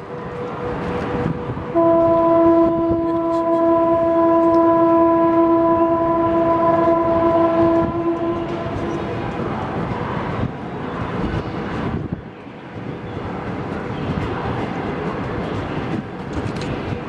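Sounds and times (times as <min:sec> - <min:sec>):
train rolling rumble: 0:00.0 - 0:17.0
locomotive horn blast: 0:01.7 - 0:09.1.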